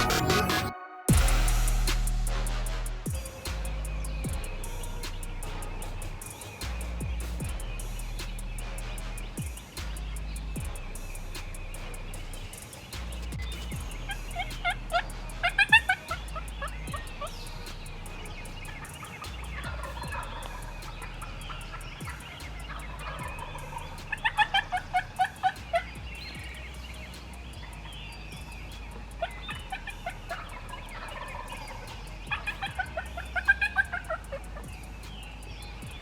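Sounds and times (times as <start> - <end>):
turkey yelping: 22.7 - 25.6, 29.2 - 34.2.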